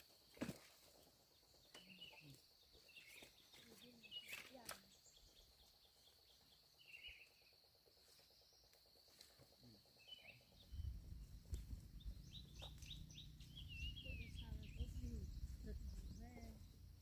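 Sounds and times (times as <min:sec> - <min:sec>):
high insect drone: 0:00.0 - 0:17.0
bird chirps: 0:01.3 - 0:17.0
low rumble: 0:10.6 - 0:17.0.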